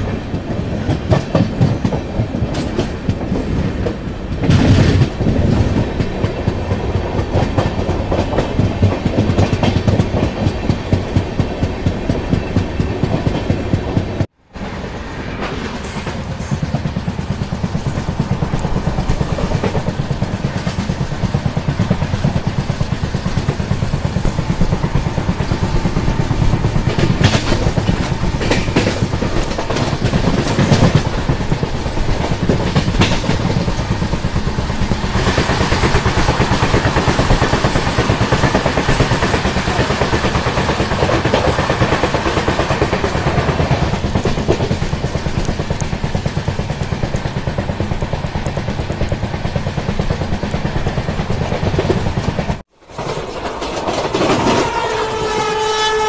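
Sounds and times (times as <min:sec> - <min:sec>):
train wheels clattering over rails: 0:00.0 - 0:55.8.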